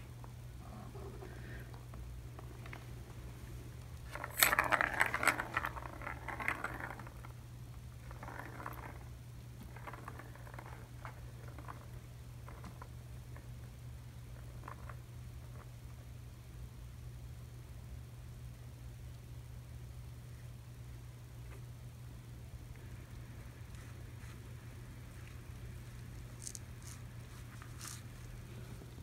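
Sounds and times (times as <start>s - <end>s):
cat toy balls rattling: 3.9s - 7.4s, 8.0s - 15.8s, 25.0s - 28.3s.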